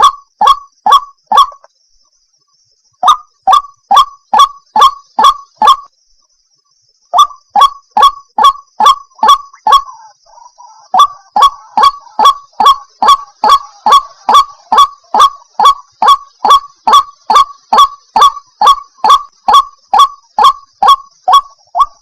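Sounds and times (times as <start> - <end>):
waterhen calling: 7.2 - 22.0.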